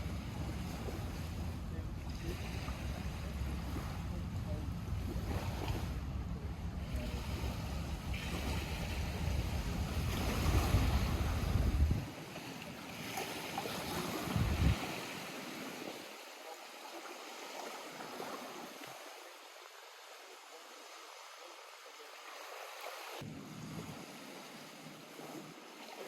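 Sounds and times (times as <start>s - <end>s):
lake water lapping at shore: 0.0s - 26.0s
wind buffeting microphone: 2.5s - 12.2s, 13.9s - 15.2s.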